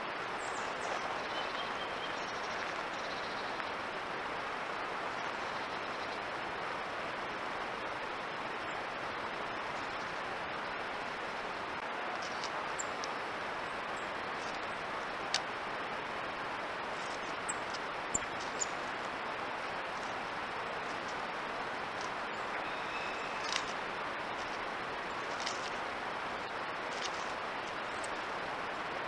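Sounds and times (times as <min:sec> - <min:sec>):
steady hiss: 0:00.0 - 0:29.0
faint bird chirps: 0:22.3 - 0:23.7.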